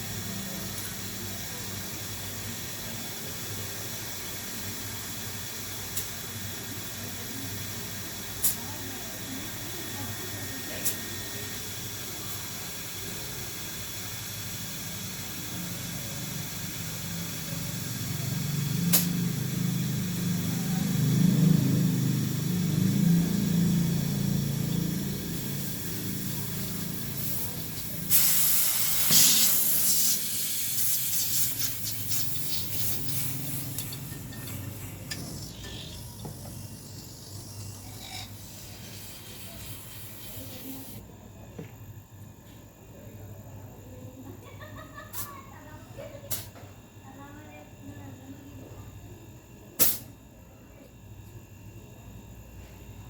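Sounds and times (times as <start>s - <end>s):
pressurised gas hissing: 25.4s - 34.0s.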